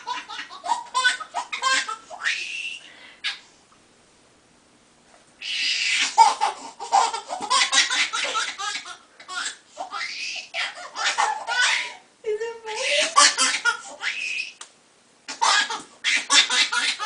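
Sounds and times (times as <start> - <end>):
baby laughing: 0.0 - 3.4, 5.4 - 12.0, 12.7 - 14.6, 15.3 - 17.0.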